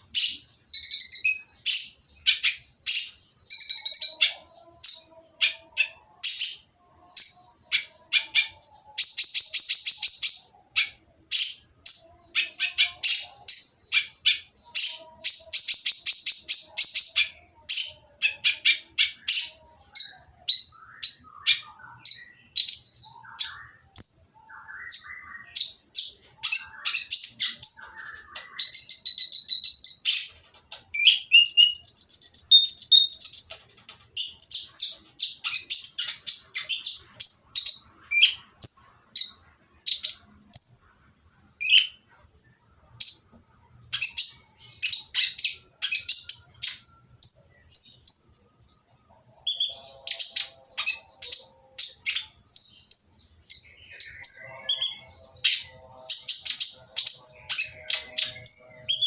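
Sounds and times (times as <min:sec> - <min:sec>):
sunbird singing fast chirps: 0:00.0 - 0:33.6.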